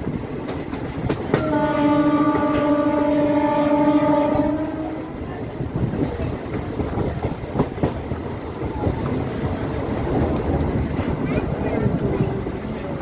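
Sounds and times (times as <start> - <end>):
train wheels clacking over rail joints: 0.0 - 4.7, 5.3 - 13.0
train horn: 1.3 - 5.3.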